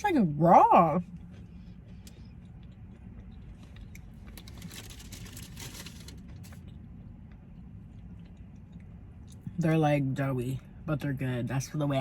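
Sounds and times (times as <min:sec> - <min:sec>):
crackling and rustling of cookies: 0:01.0 - 0:09.5.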